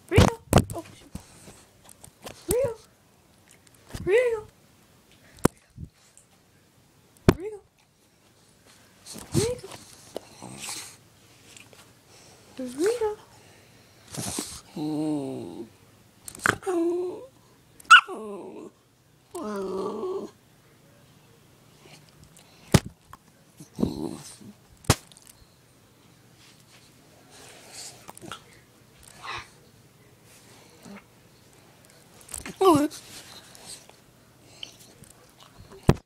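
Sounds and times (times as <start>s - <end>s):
faint dog sound: 26.6s - 36.0s.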